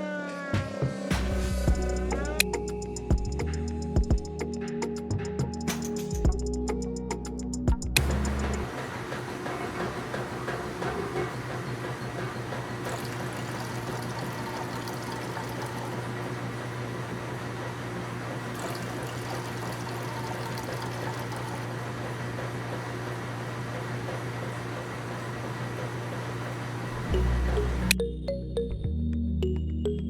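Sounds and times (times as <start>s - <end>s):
water running and splashing: 12.6s - 17.2s, 18.4s - 22.6s.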